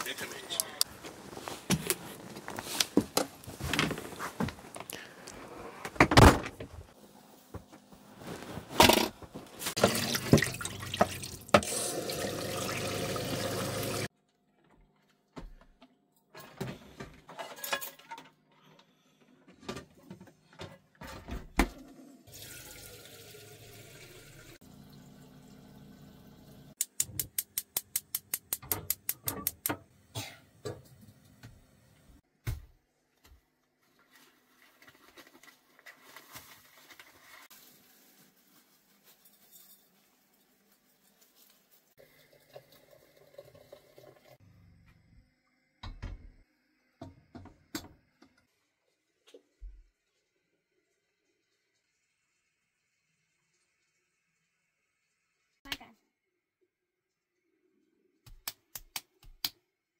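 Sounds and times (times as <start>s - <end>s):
knocks and handling sounds: 0.8s - 9.9s
water running: 9.6s - 14.1s, 21.8s - 26.8s, 42.0s - 44.4s.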